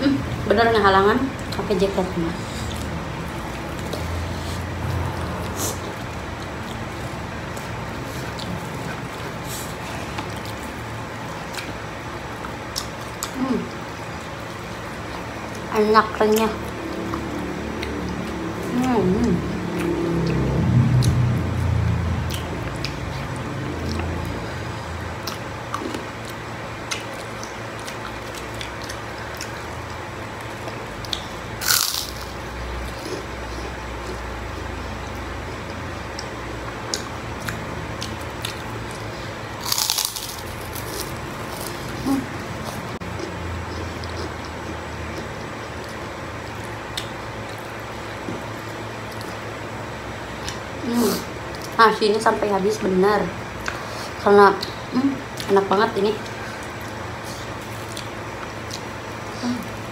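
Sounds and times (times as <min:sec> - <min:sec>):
steady low rumble: 0:00.0 - 0:50.8
people chewing food: 0:01.2 - 0:51.8, 0:53.4 - 0:59.9
crispy cracker crunch: 0:31.6 - 0:32.4, 0:39.6 - 0:41.9
chewing smacks: 0:42.6 - 0:47.8.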